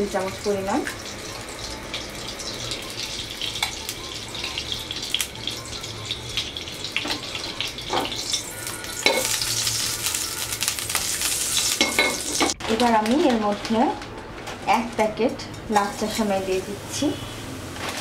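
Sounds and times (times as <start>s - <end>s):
ghee sizzling in a frying pan: 0.0s - 14.0s.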